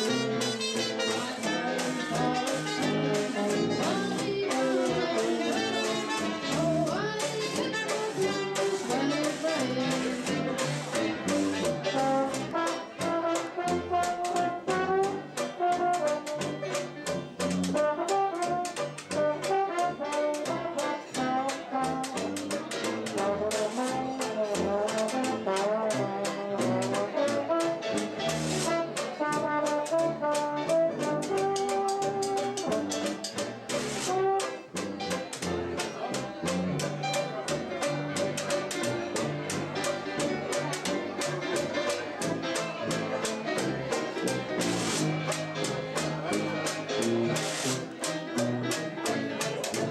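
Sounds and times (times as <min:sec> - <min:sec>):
bass line: 0:00.0 - 0:19.3
brass instrument melody: 0:00.0 - 0:49.9
drums keeping a beat: 0:00.0 - 0:49.9.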